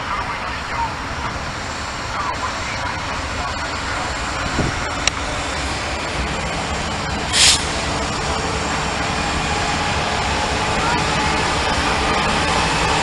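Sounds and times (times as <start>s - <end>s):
freight train rolling past: 0.0s - 13.0s
short hiss: 7.3s - 7.9s.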